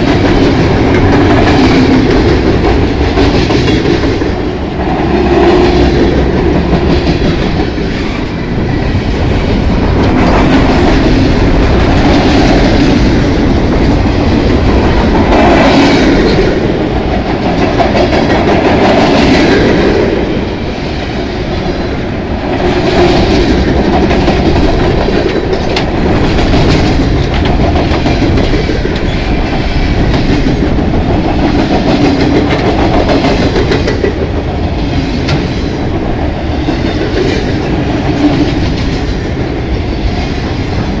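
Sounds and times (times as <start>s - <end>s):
steel wheels rumbling on rails: 0.0s - 41.0s
wheels clicking over rail joints: 22.5s - 34.6s.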